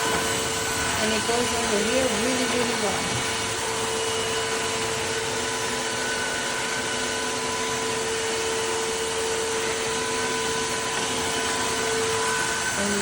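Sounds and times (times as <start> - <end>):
vacuum mop running: 0.0 - 13.0.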